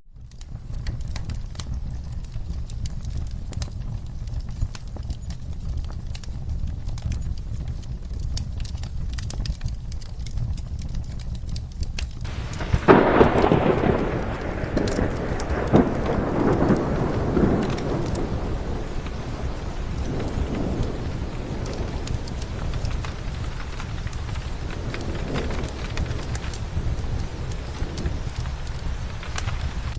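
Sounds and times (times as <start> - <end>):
wood fire crackling: 0.0 - 29.9
steady rain: 0.1 - 29.9
thunder rolling: 12.2 - 29.9.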